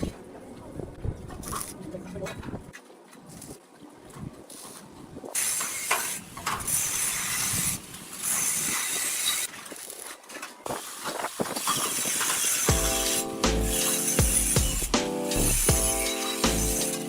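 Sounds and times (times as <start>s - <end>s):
hissing spray from nozzle: 10.7s - 17.0s.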